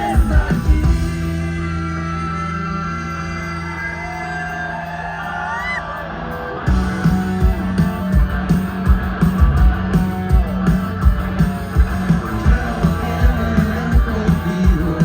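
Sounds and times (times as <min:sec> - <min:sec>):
drums and bass beat: 0:00.0 - 0:03.1, 0:06.7 - 0:15.0
rock band music: 0:00.0 - 0:15.0.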